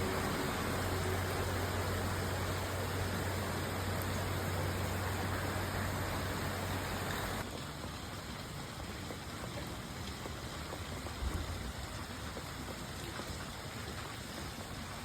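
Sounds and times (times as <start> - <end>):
water running: 0.0 - 7.5
heavy rain falling: 0.0 - 15.0.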